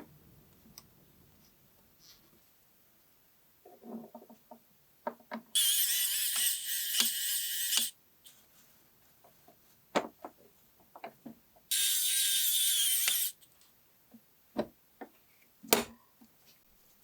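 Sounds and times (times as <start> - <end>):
clicks of small parts and tools: 5.3 - 7.9
small power tool motor: 5.6 - 7.9, 11.7 - 13.4.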